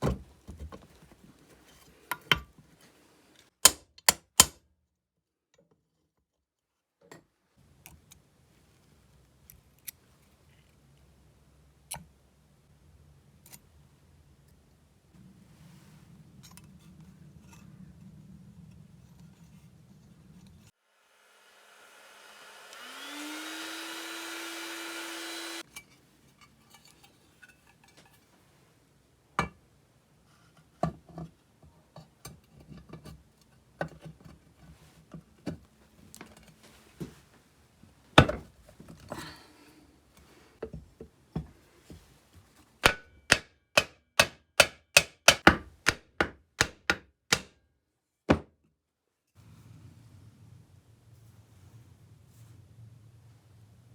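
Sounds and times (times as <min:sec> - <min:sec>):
power tool motor whining: 0:21.1 - 0:25.6.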